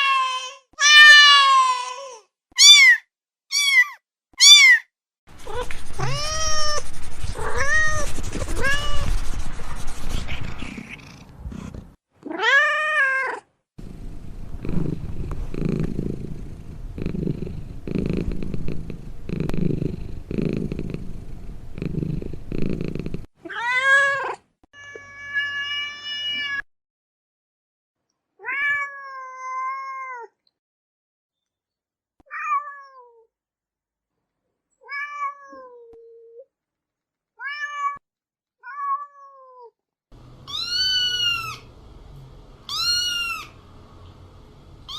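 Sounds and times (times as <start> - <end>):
cats meowing: 2.6 - 9.2, 10.2 - 13.4, 40.4 - 41.8, 42.6 - 43.7
low rumbling cat noise: 5.3 - 12.0, 13.8 - 23.3, 40.2 - 44.9.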